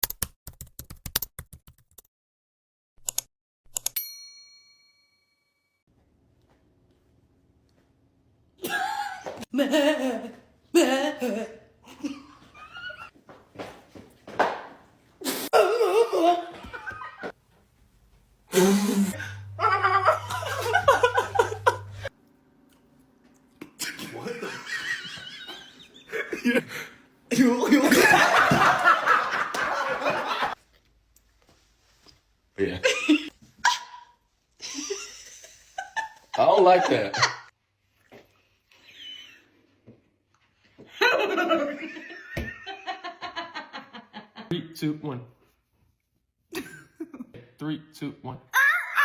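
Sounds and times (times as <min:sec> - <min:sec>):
bell ding: 0:04.0 - 0:05.8
people laughing: 0:08.8 - 0:13.1, 0:16.0 - 0:17.3, 0:19.1 - 0:22.1, 0:23.8 - 0:30.6, 0:34.6 - 0:37.5
steady low hum: 0:18.0 - 0:24.7.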